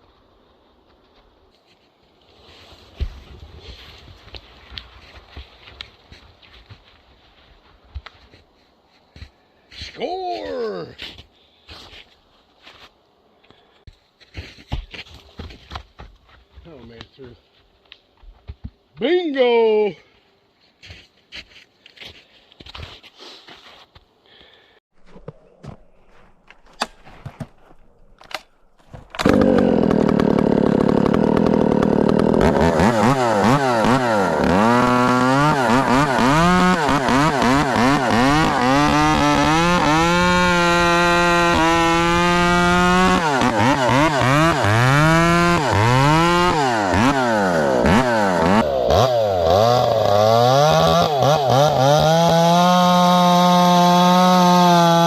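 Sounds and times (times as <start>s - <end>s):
chainsaw cutting wood: 28.2s - 55.0s.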